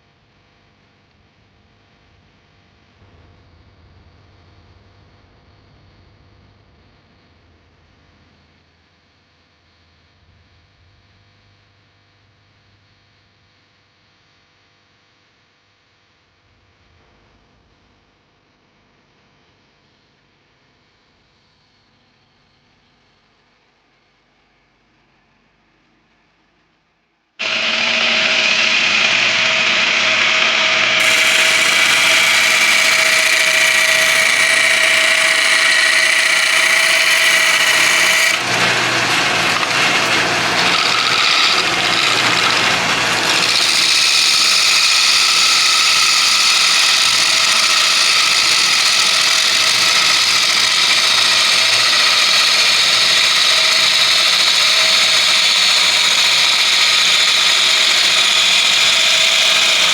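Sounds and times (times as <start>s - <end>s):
gouge scraping wood: 27.4s - 59.9s
lathe motor whine: 27.4s - 59.9s.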